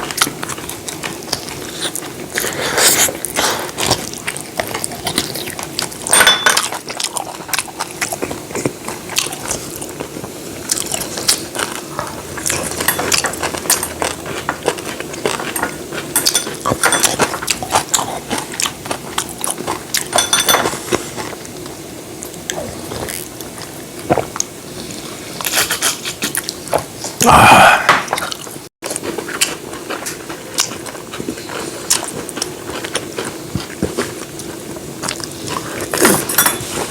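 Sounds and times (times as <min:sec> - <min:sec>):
chewing and crunching: 0:00.0 - 0:27.2, 0:28.0 - 0:36.9
cutlery clicking against dishes: 0:15.5 - 0:17.8, 0:20.0 - 0:20.8, 0:36.2 - 0:36.8.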